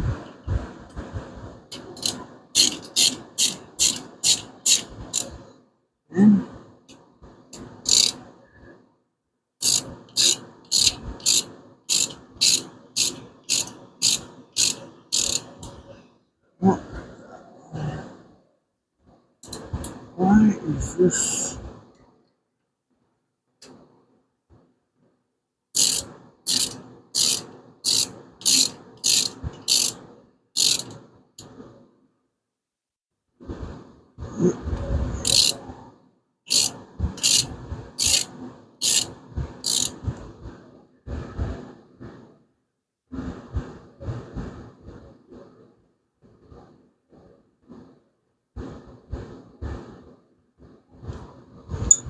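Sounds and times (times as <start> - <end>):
ratchet wrench clicking: 1.7 - 5.3, 7.6 - 8.2, 9.6 - 15.7, 25.8 - 30.0, 30.6 - 31.5, 35.2 - 35.6, 36.5 - 40.0.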